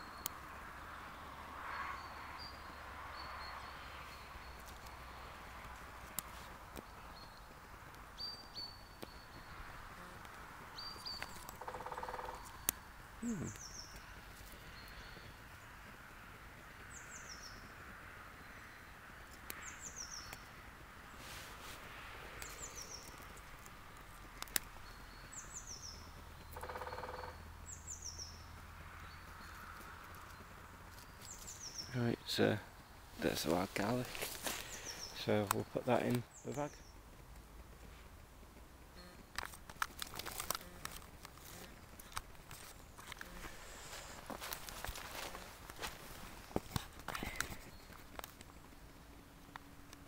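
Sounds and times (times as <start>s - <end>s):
sharp clicks: 22.2s - 24.9s, 38.6s - 43.4s.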